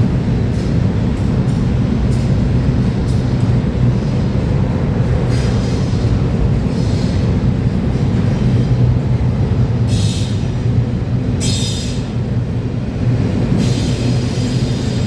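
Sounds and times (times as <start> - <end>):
freight train rumbling past: 0.0 - 15.0
high wheel squeals: 11.4 - 12.1.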